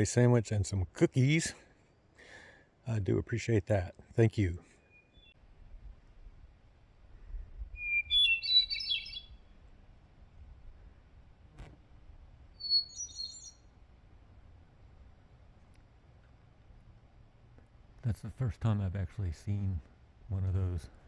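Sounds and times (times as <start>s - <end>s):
songbird twittering: 4.8s - 5.4s, 7.6s - 9.6s, 12.5s - 13.7s.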